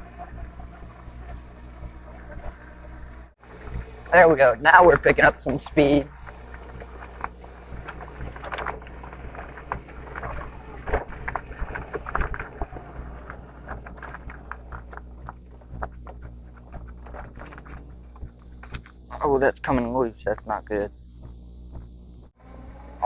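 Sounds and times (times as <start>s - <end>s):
electric dirt bike hum: 0.0s - 23.0s
rattles and knocks of bike: 3.8s - 19.0s.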